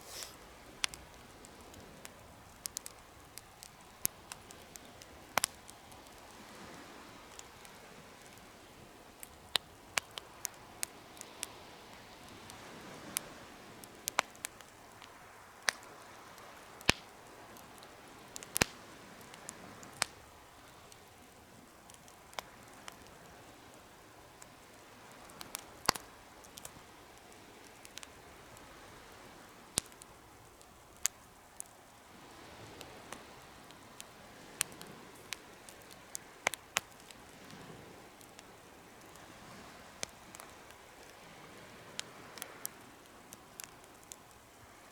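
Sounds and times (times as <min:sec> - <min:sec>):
soft steady hiss: 0:00.0 - 0:44.9
wood fire crackling and popping: 0:00.0 - 0:44.9.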